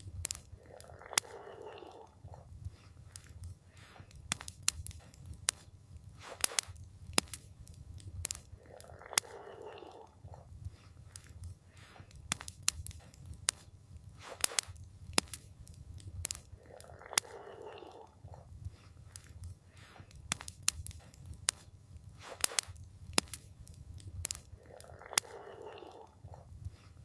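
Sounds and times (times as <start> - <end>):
campfire crackling and popping: 0.0 - 27.0
soft breathy swell: 0.4 - 4.1.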